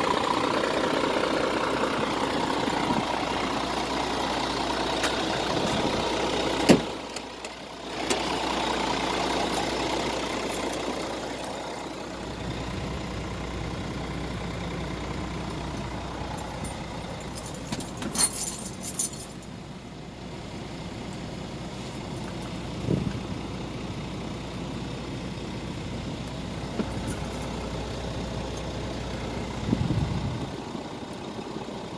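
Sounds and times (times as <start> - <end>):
diesel truck engine idling: 0.0 - 31.9
metallic jangling rattle: 10.4 - 11.6, 16.3 - 19.6.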